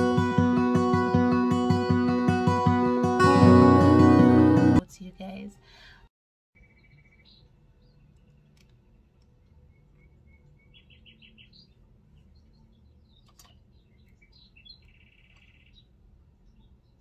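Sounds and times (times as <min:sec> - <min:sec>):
faint bird chirps and trills: 0:06.6 - 0:17.0.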